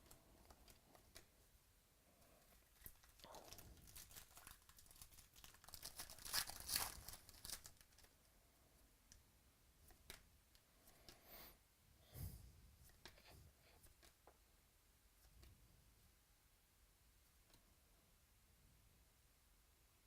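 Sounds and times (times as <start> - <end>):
foil wrapper tearing and crinkling: 2.8 - 8.1.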